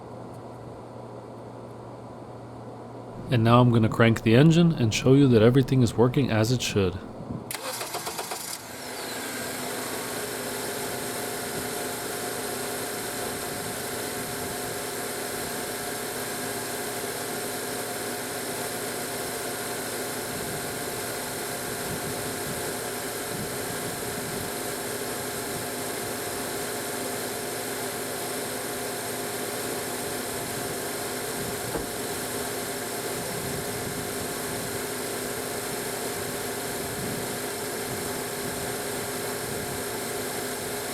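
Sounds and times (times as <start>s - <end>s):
car engine starting and idling: 3.8s - 8.8s.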